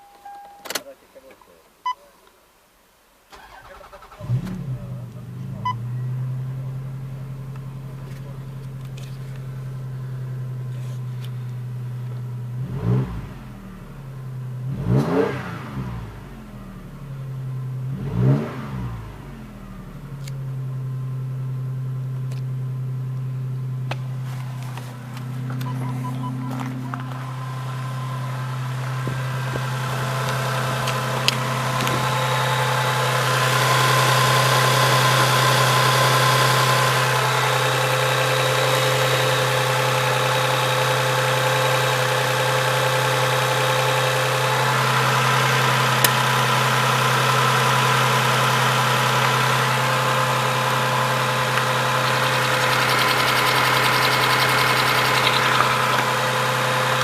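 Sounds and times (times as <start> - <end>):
car engine idling: 3.3 - 14.8, 16.0 - 57.0
sharp engine tick: 51.6 - 56.0.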